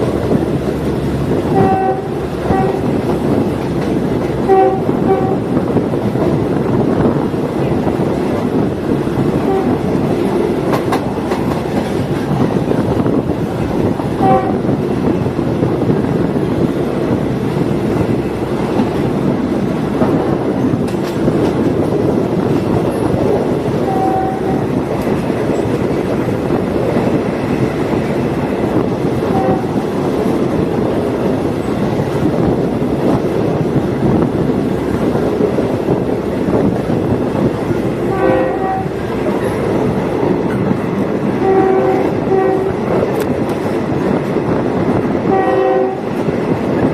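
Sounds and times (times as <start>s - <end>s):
train rumble and wheel clatter: 0.0s - 46.9s
train horn toots: 1.5s - 3.0s, 4.4s - 5.6s, 9.4s - 9.9s, 14.1s - 14.8s, 23.7s - 24.8s, 29.2s - 29.8s, 38.1s - 39.0s, 41.4s - 42.9s, 45.3s - 46.2s.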